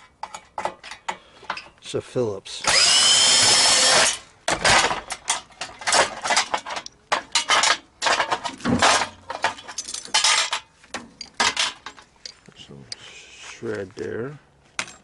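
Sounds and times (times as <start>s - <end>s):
metal parts clattering: 4.5s - 12.1s.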